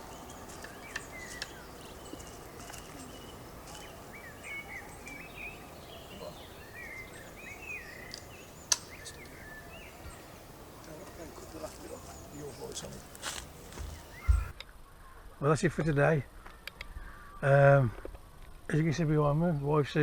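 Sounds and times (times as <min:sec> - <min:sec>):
outdoor background hum: 0:00.0 - 0:14.6
small birds chirping: 0:00.0 - 0:14.6
sharp clicks: 0:08.0 - 0:09.4.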